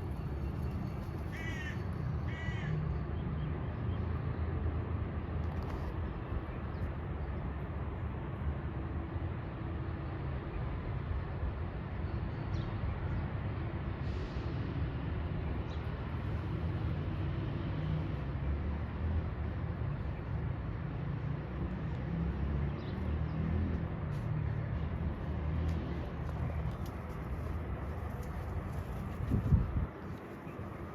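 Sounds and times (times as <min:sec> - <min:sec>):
traffic rumble: 0:00.0 - 0:30.9.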